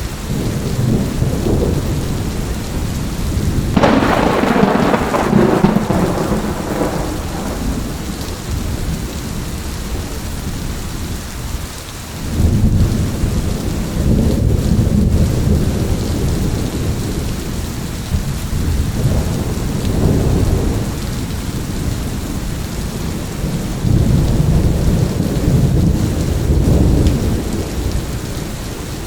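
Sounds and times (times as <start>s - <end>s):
heavy rain: 0.0s - 29.0s
rolling thunder: 0.3s - 10.8s, 12.2s - 29.0s
sharp thunderclap: 3.5s - 9.1s, 18.6s - 22.4s.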